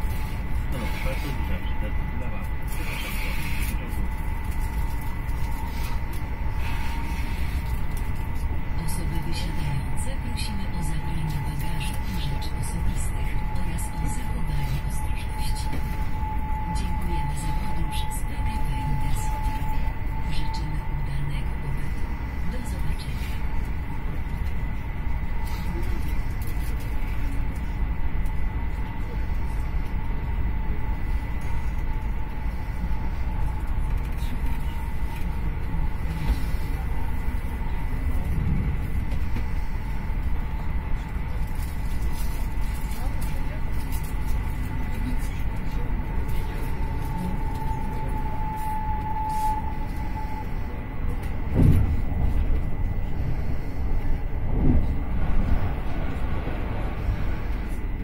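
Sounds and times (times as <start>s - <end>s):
moving train rumble: 0.0s - 58.0s
faint high whine: 44.6s - 58.0s.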